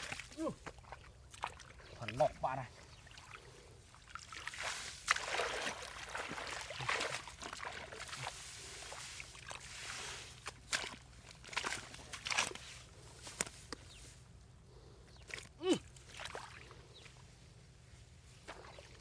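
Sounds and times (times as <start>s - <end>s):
water sloshing and trickling: 0.0s - 19.0s.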